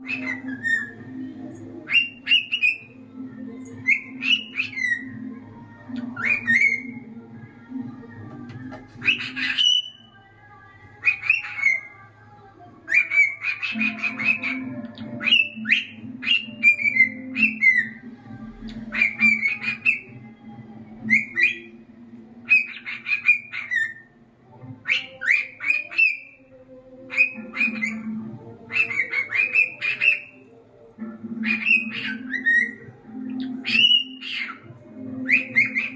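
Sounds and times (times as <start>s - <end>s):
cockatiel chattering: 0.0s - 1.0s, 9.0s - 9.9s, 12.9s - 18.0s, 18.9s - 20.1s, 22.4s - 24.0s, 27.1s - 30.4s, 31.4s - 32.8s, 33.4s - 34.6s, 35.3s - 35.9s
cockatiel whistling: 0.0s - 1.2s, 1.9s - 2.9s, 3.8s - 5.2s, 6.0s - 7.0s, 9.0s - 10.1s, 12.9s - 18.0s, 18.9s - 20.2s, 21.1s - 21.7s, 22.5s - 24.0s, 24.8s - 26.3s, 27.1s - 30.4s, 31.4s - 35.9s.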